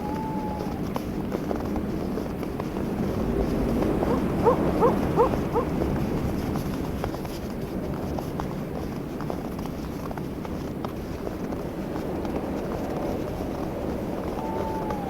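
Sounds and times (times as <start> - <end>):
animal short rising calls: 0.0 - 1.0, 3.9 - 5.8, 14.2 - 15.0
wind noise: 0.0 - 9.2, 11.6 - 15.0.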